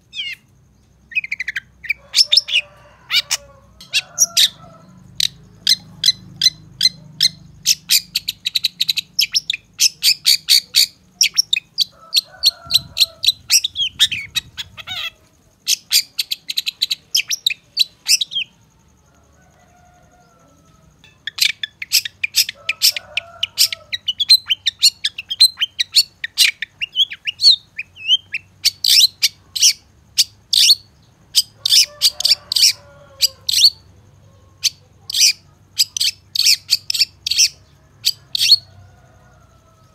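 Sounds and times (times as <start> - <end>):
bird singing chattering notes: 21.0 - 23.0.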